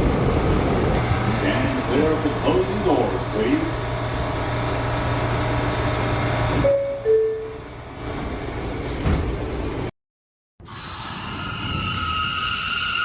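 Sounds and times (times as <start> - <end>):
subway train humming: 0.0 - 9.9
two-note door chime: 6.6 - 7.6.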